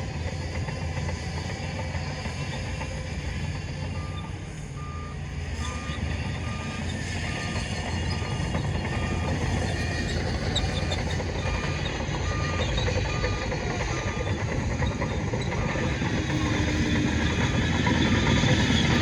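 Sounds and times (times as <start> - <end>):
diesel machine rumbling: 0.0 - 19.0
reversing alarm beeping: 3.9 - 19.0.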